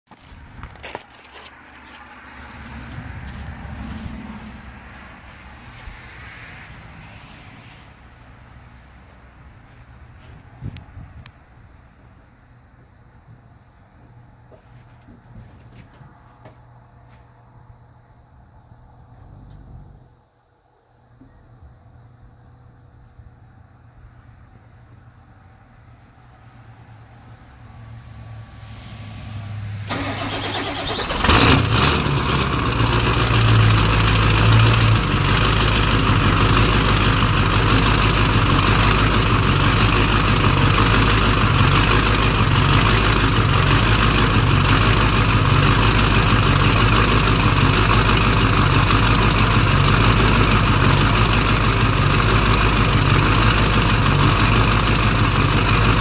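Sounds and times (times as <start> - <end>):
diesel engine idling: 0.2 - 5.9, 29.8 - 56.0
diesel engine cranking and starting: 29.8 - 56.0.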